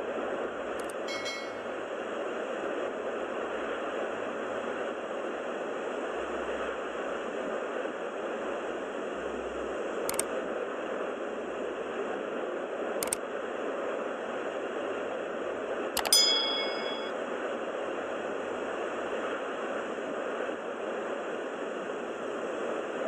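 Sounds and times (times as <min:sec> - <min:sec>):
steady noise hiss: 0:00.0 - 0:23.0
faint clicks: 0:00.8 - 0:01.6, 0:10.1 - 0:10.3
sharp click: 0:00.8 - 0:01.6, 0:10.1 - 0:10.3, 0:16.0 - 0:17.1
short ringing tone: 0:01.0 - 0:01.7, 0:16.0 - 0:17.1.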